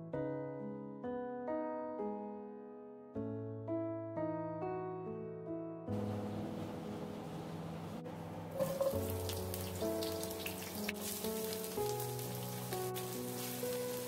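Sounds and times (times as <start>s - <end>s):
soft piano music: 0.0s - 14.0s
onions sizzling in wok: 8.5s - 14.0s.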